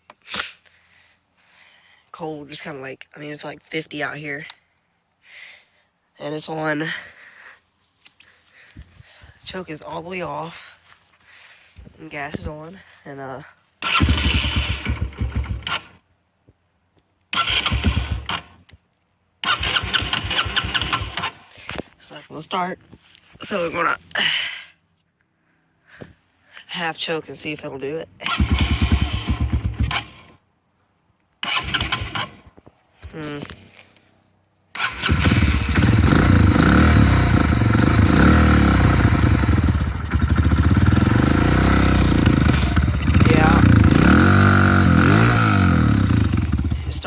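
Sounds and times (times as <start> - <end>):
motorcycle engine cranking: 13.8 - 16.0, 17.3 - 18.6, 19.4 - 21.4, 28.2 - 30.4, 31.4 - 32.5, 34.7 - 46.9.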